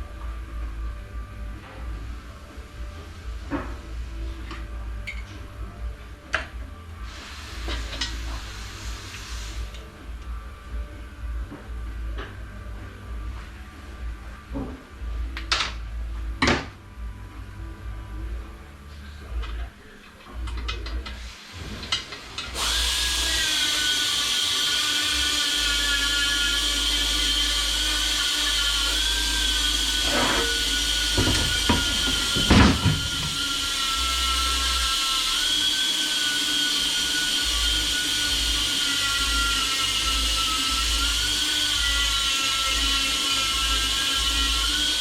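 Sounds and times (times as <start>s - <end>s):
power tool whining: 21.8s - 45.0s.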